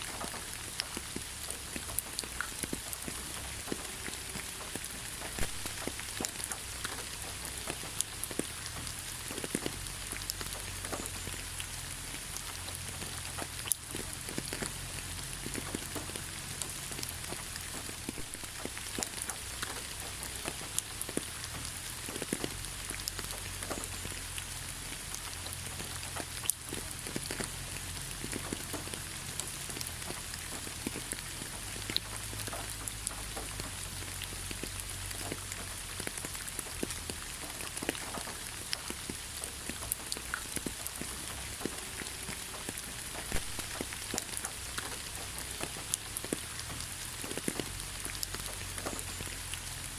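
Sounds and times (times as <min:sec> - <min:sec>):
raindrops tapping: 0:00.0 - 0:49.9
steady rain hiss: 0:00.0 - 0:49.9.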